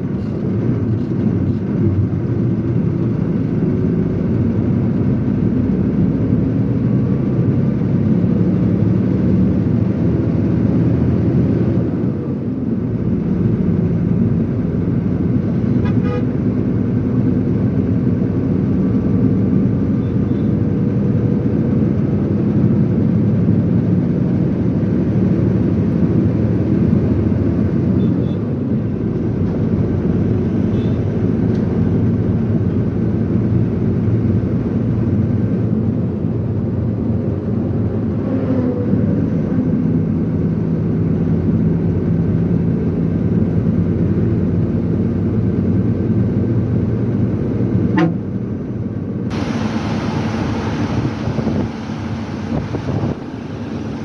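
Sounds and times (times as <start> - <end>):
road noise: 0.0 - 54.0
truck engine running: 39.8 - 54.0.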